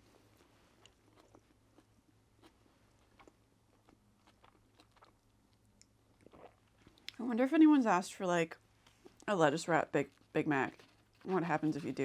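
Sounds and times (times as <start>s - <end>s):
low steady hum: 0.0s - 12.0s
chewing mouth clicks: 0.8s - 7.2s.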